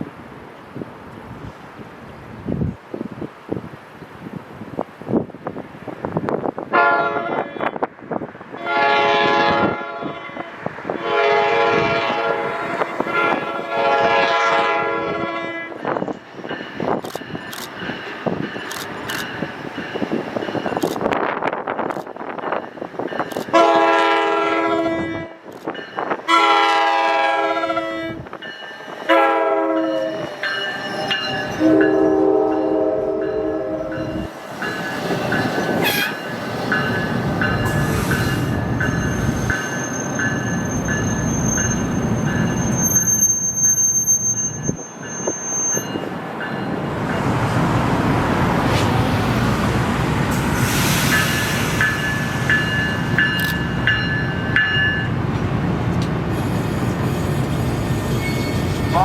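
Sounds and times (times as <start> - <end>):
train wheels rumbling on rails: 0.0 - 59.0
train horn blasts: 6.7 - 7.7, 8.6 - 15.9, 23.5 - 25.5, 26.2 - 28.3, 29.1 - 30.3, 31.5 - 34.3, 35.8 - 36.2
wheels clickety-clack: 16.9 - 19.4.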